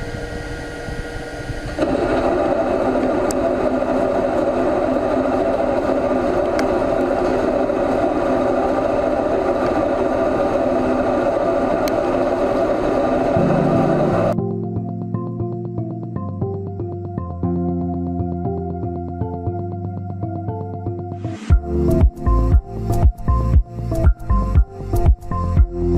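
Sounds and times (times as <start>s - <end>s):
lathe mechanical whir: 0.0s - 14.4s.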